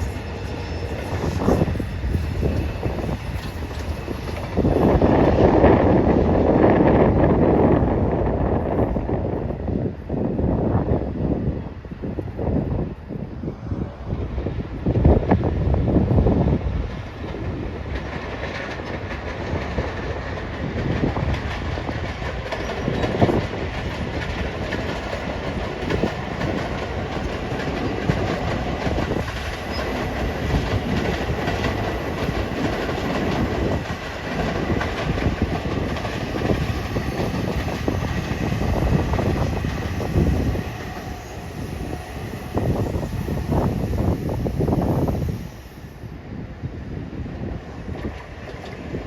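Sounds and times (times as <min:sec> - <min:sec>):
train rumbling on viaduct: 0:00.0 - 0:49.0
wheels clacking over rail joints: 0:17.0 - 0:44.7.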